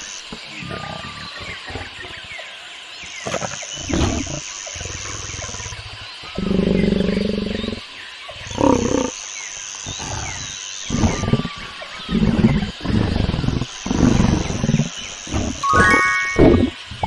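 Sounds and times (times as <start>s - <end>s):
lion grunting: 0.4s - 2.3s, 9.9s - 15.6s.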